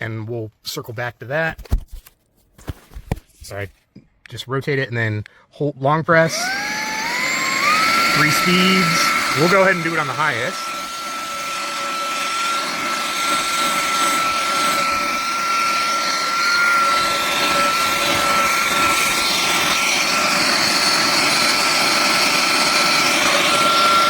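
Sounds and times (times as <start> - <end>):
handheld vacuum motor whine: 6.2 - 24.0.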